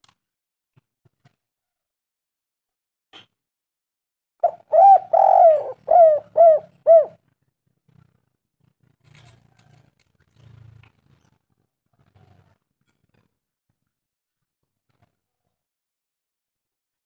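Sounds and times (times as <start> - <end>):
dove cooing: 4.4 - 7.2.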